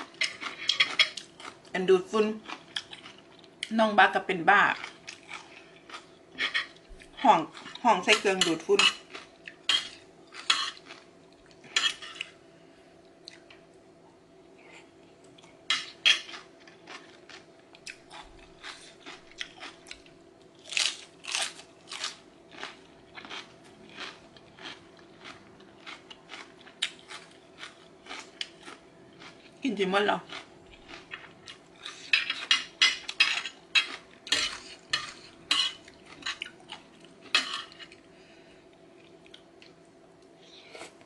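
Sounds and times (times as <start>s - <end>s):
faint steady hum: 0.0s - 41.0s
crunchy chewing: 2.4s - 3.7s, 4.7s - 7.8s, 9.0s - 12.4s, 14.6s - 29.6s, 30.2s - 38.1s.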